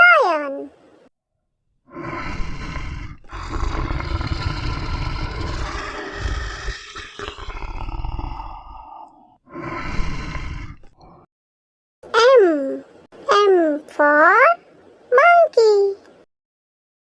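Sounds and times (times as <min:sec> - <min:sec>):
lion roaring and growling: 0:01.9 - 0:11.3.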